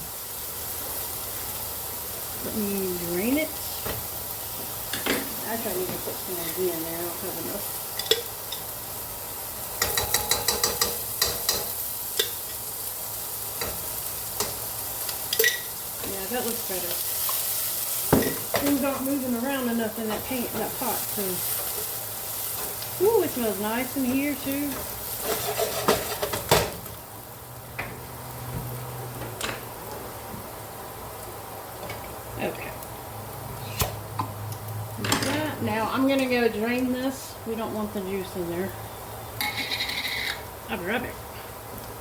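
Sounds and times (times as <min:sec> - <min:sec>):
vegetables sizzling in a pot: 0:00.0 - 0:42.0
utensils clinking against pot: 0:09.8 - 0:12.4, 0:15.3 - 0:15.7, 0:39.4 - 0:40.4.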